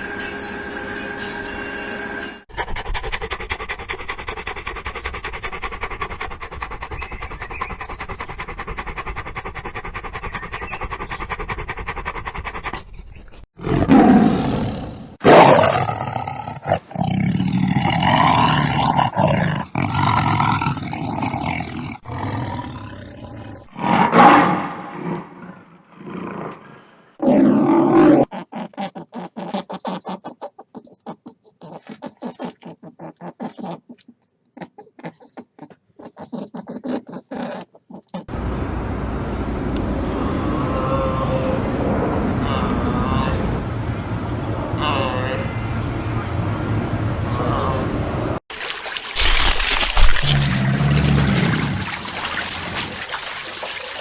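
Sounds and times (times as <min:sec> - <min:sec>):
animal roars and growls: 0:13.6 - 0:29.5, 0:49.1 - 0:53.6.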